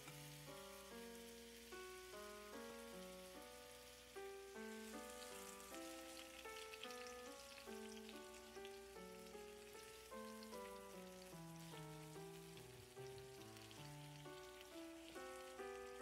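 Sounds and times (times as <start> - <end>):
chicken wings sizzling in oil: 0.0 - 16.0
light melodic background music: 0.0 - 16.0.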